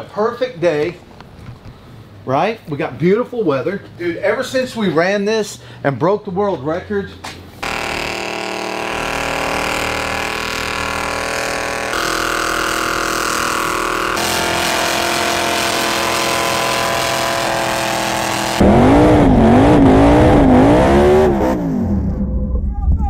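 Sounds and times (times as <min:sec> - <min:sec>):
car engine revving high: 0:07.6 - 0:22.2.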